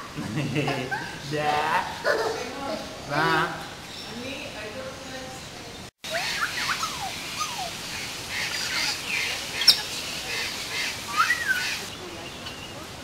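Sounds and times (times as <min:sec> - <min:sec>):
birds chirping and whistling: 0:03.8 - 0:12.8.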